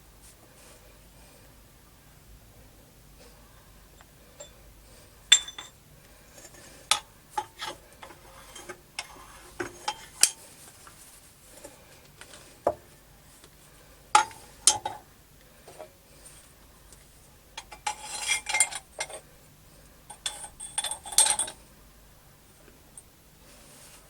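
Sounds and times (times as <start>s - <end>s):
metal tools clinking together: 5.3s - 5.8s, 17.6s - 19.2s, 20.1s - 21.6s.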